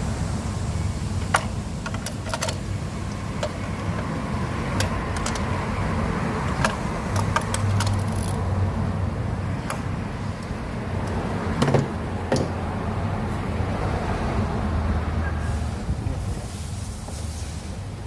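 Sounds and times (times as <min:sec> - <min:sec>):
hand tools clicking and clinking: 0:01.2 - 0:02.6, 0:04.8 - 0:05.5, 0:06.6 - 0:08.4.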